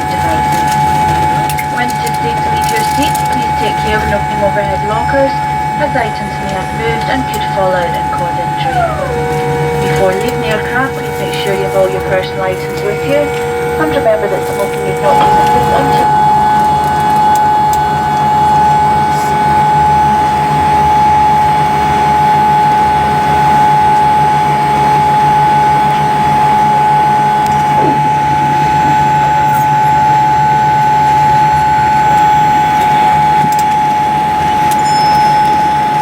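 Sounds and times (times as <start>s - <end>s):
high-pitched whine: 0.0s - 36.0s
low hum: 0.0s - 36.0s.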